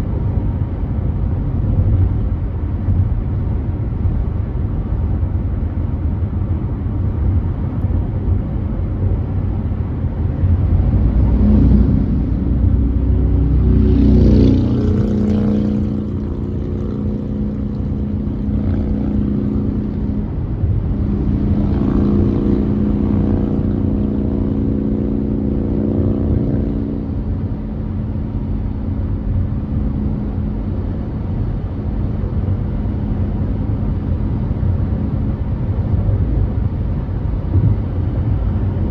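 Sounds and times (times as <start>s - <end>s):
road and tyre rumble: 0.0s - 38.9s
deep hum: 9.0s - 36.5s.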